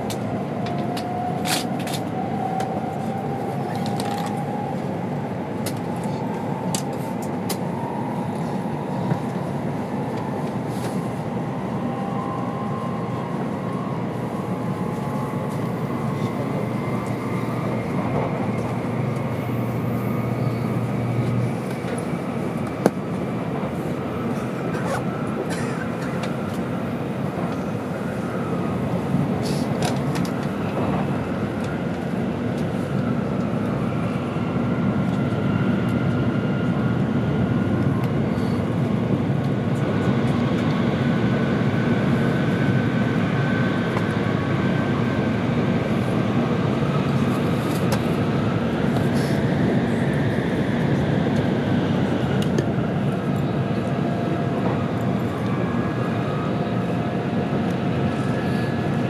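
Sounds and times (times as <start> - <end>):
train cabin rumble: 13.5 - 36.8.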